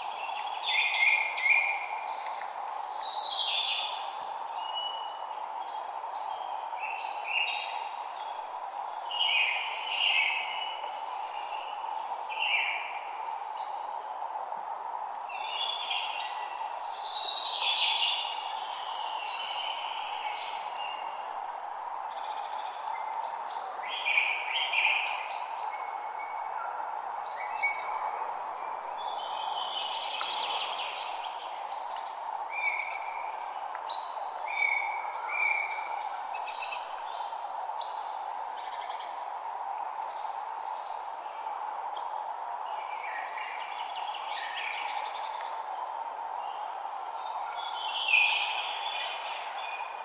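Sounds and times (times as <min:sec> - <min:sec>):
songbirds chirping and whistling: 0:22.2 - 0:45.9.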